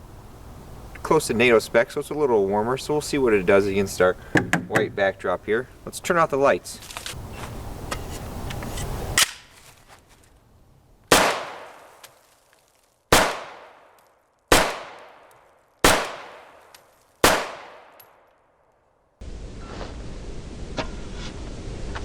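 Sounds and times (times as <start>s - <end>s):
rifle shots with ringing tail: 11.1s - 11.9s, 13.1s - 13.9s, 14.5s - 16.6s, 17.2s - 18.2s.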